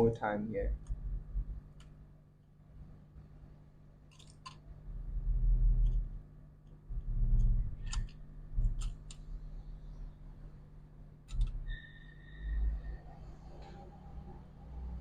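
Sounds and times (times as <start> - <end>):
sharp small clicks: 4.1 - 4.7, 7.4 - 9.3.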